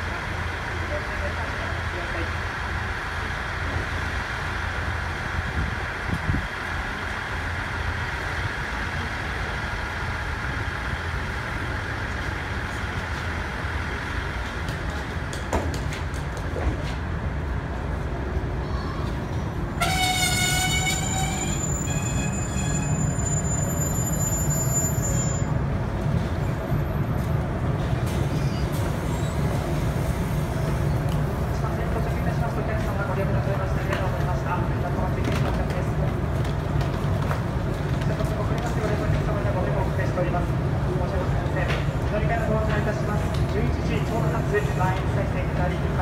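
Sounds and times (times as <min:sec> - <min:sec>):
standing train humming: 0:00.0 - 0:35.0
electric train rumbling: 0:00.0 - 0:46.0.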